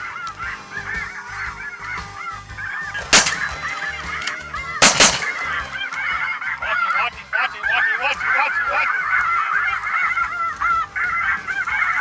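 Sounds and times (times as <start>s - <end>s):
flock of geese calling: 0.0s - 12.0s
shotgun shots: 3.0s - 6.1s.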